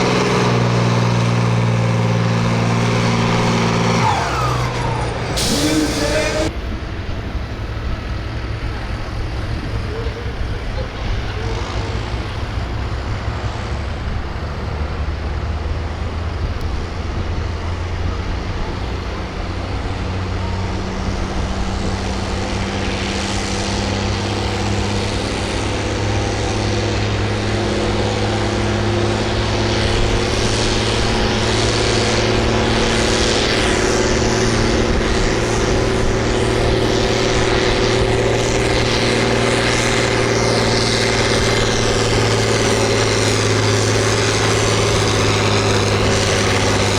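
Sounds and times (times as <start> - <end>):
tractor engine running under load: 0.0 - 46.9.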